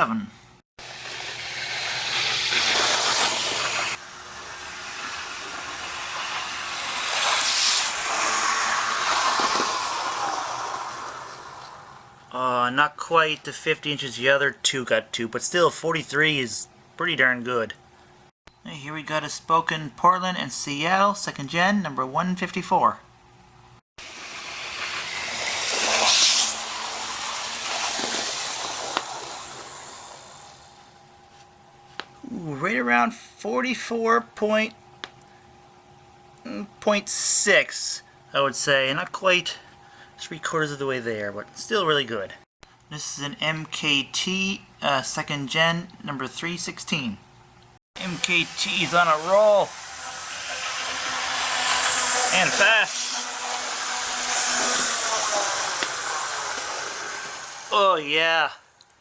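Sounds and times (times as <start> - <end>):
model train motor whirring: 0.8 - 12.3, 24.0 - 31.0, 48.0 - 58.1.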